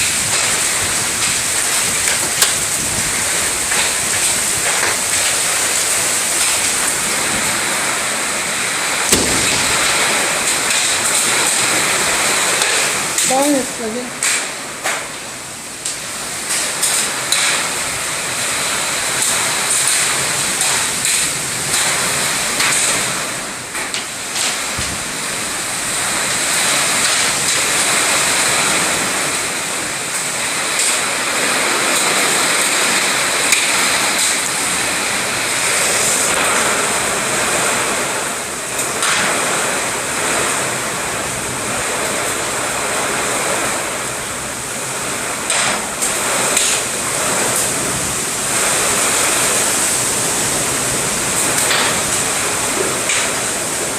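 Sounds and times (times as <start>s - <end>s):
drops or hailstones ticking: 0.0s - 7.3s, 9.1s - 15.0s, 15.8s - 24.9s
heavy rain pouring: 0.0s - 53.9s.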